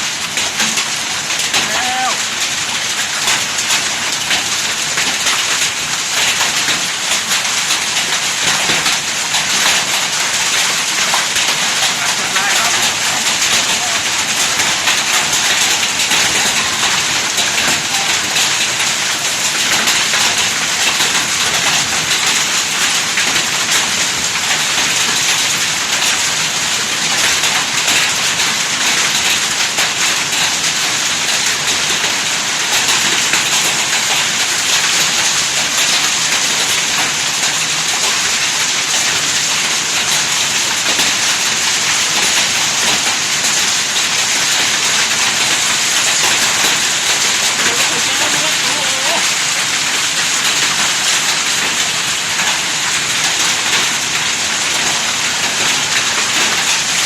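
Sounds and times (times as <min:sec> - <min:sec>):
hail and heavy rain: 0:00.0 - 0:57.0.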